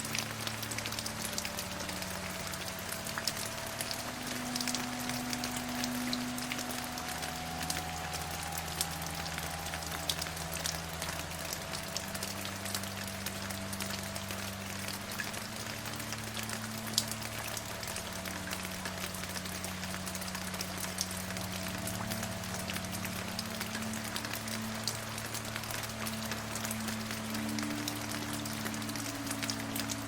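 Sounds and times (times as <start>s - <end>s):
raindrops ticking: 0.0s - 30.0s
soft low drone: 0.0s - 30.0s
steady rain hiss: 0.0s - 30.0s.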